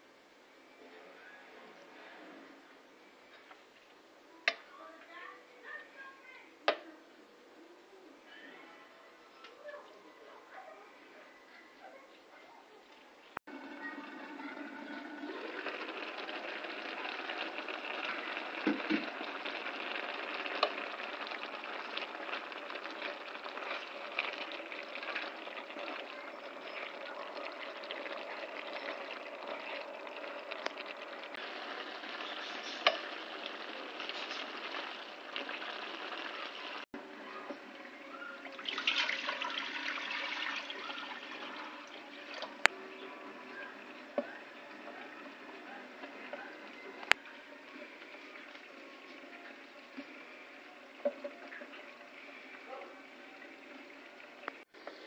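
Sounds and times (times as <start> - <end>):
frying sizzle with pops: 13.5 - 55.0.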